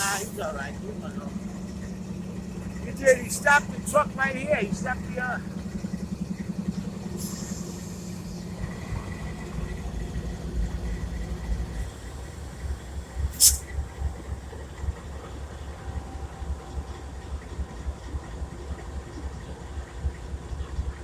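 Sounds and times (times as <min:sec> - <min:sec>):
diesel locomotive idling: 0:00.0 - 0:21.0
sharp burst of hiss: 0:13.3 - 0:13.6.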